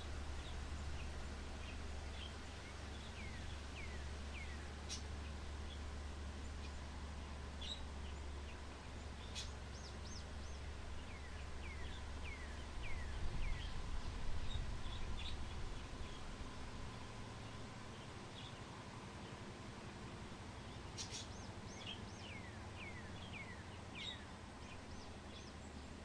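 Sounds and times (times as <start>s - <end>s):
low wind rumble: 0.0s - 26.0s
small songbirds chirping: 0.0s - 26.0s.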